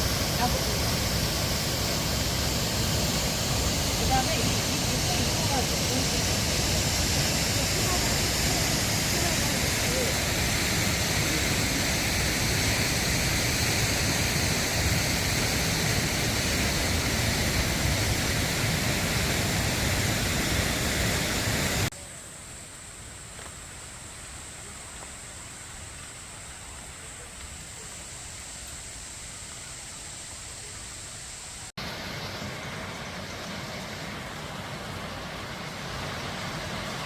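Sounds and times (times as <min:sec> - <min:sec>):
waterfall rushing: 0:00.0 - 0:21.9, 0:31.8 - 0:37.0.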